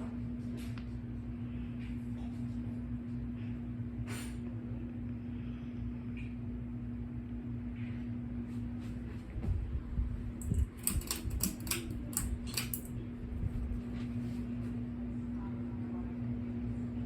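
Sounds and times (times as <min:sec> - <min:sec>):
ceiling fan motor hum: 0:00.0 - 0:17.0.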